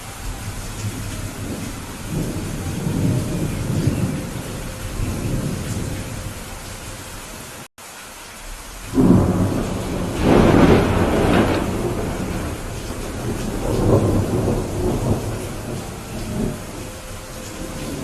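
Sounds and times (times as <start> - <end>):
low rolling thunder: 0.0 - 7.6, 8.5 - 18.0
heavy rain: 0.0 - 18.0.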